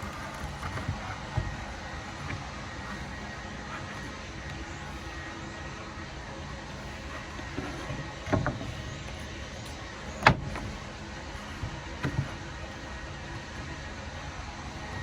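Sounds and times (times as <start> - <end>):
steady background hum: 0.0 - 15.0
wooden workpieces knocking: 6.7 - 13.8.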